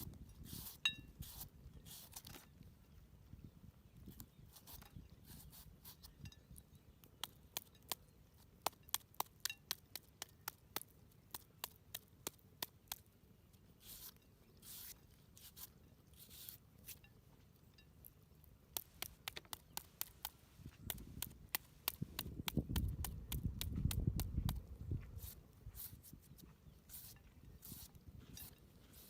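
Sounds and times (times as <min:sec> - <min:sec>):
sharp clicks and taps: 0:18.7 - 0:24.7.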